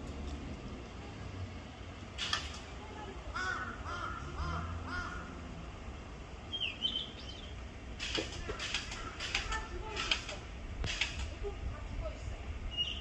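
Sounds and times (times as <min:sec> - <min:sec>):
harsh bird calls: 0:03.3 - 0:05.6, 0:06.4 - 0:07.6, 0:08.4 - 0:09.7, 0:12.7 - 0:13.0.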